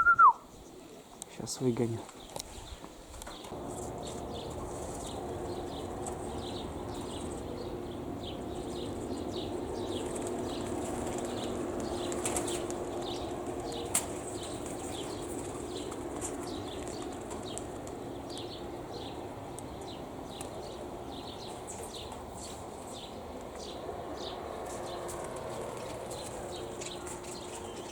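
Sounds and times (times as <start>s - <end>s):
pigeon wings flapping: 8.5s - 18.4s.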